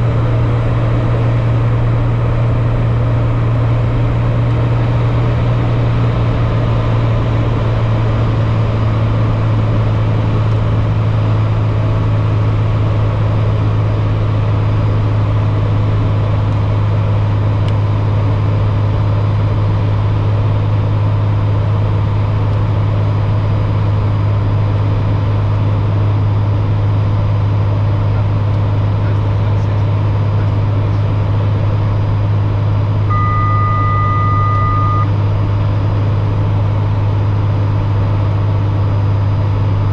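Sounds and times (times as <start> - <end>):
airliner drone in flight: 0.0 - 39.9
steady high beep: 33.1 - 35.1.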